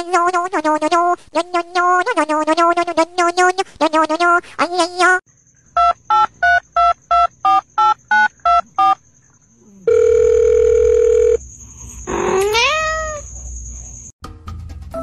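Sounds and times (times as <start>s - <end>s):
loud steady phone tone: 9.9s - 11.4s.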